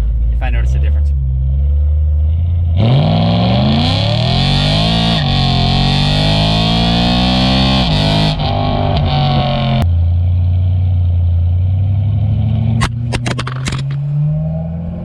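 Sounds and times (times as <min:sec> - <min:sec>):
car engine revving at full throttle: 0:00.0 - 0:09.8, 0:11.5 - 0:15.0.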